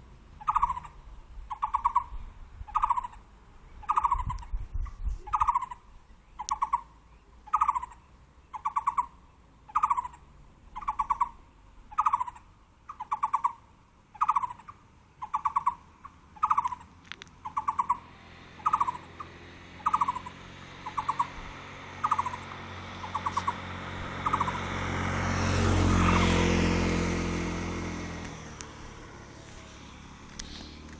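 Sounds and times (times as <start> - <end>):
vehicle passing: 0.0 - 30.9
bird rattling call: 0.4 - 2.1, 2.7 - 3.2, 3.8 - 4.5, 5.2 - 5.8, 6.4 - 6.9, 7.5 - 10.2, 10.8 - 18.0, 18.6 - 21.4, 22.0 - 23.6, 24.2 - 24.6.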